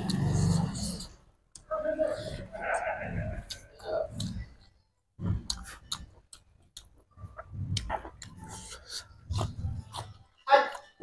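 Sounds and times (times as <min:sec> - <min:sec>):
person chewing food: 0:00.0 - 0:01.7, 0:03.1 - 0:11.0
wet mouth clicks: 0:00.0 - 0:01.7, 0:05.4 - 0:10.1.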